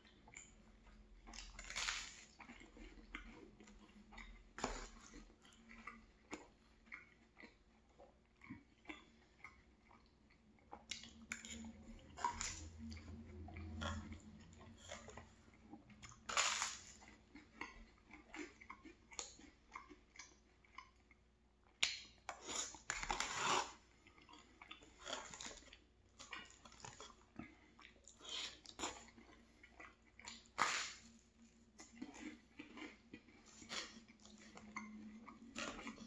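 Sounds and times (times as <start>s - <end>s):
close chewing: 0.0s - 36.0s
crunchy toast bite: 1.4s - 3.3s, 16.1s - 20.4s, 28.1s - 34.6s.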